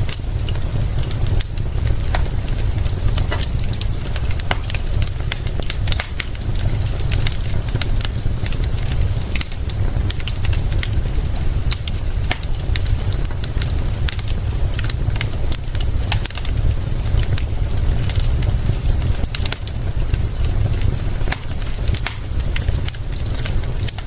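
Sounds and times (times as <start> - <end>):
low rumble: 0.0 - 15.3
rain hissing: 0.0 - 23.9
wood fire crackling and popping: 0.0 - 24.0.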